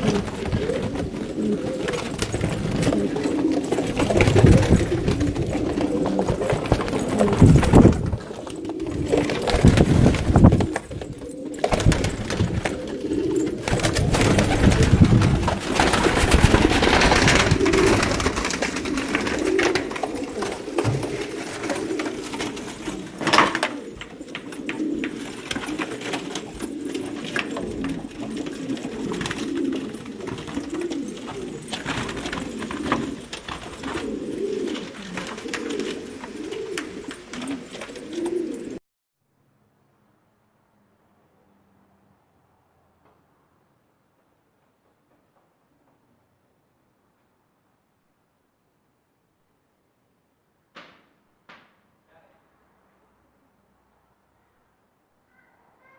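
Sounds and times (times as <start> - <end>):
pigeons cooing: 0.0 - 38.8.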